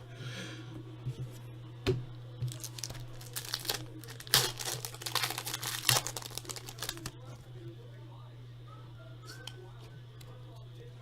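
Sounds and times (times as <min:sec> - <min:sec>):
card wrappers crinkling and tearing: 0:02.4 - 0:07.2.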